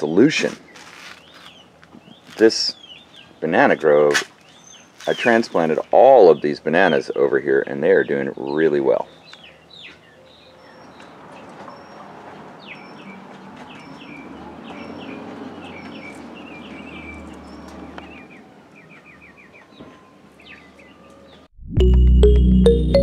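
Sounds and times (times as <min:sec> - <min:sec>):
birds chirping: 0:00.0 - 0:21.5.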